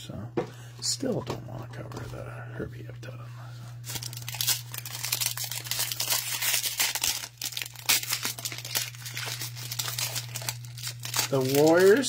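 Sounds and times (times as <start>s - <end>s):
card wrappers crinkling: 3.8s - 12.0s.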